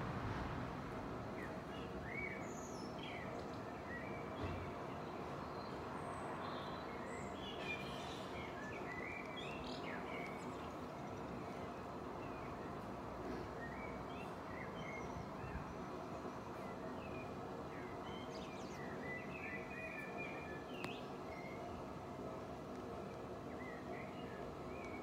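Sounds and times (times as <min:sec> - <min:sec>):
songbirds chirping and singing: 0:01.4 - 0:21.9, 0:23.2 - 0:25.0.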